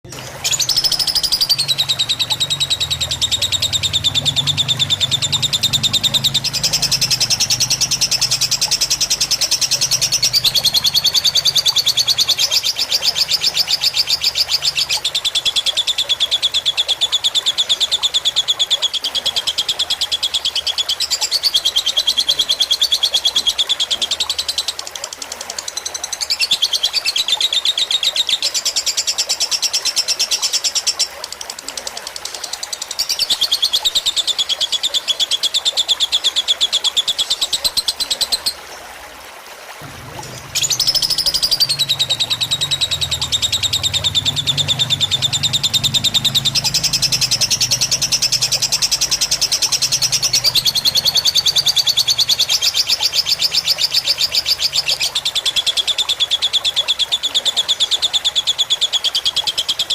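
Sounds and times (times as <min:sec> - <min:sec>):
lovebird chattering trills: 0:00.0 - 0:24.8, 0:40.1 - 0:57.3.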